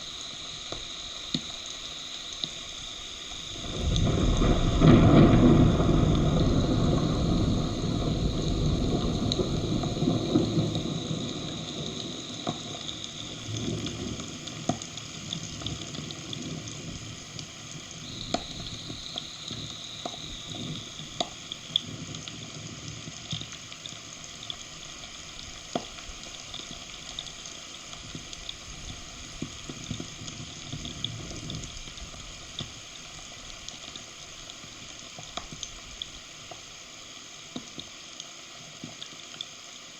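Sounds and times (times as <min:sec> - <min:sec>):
heavy rain hiss: 0:00.0 - 0:39.9
raindrops ticking close by: 0:00.0 - 0:39.9
thunder rumbling: 0:03.3 - 0:22.1.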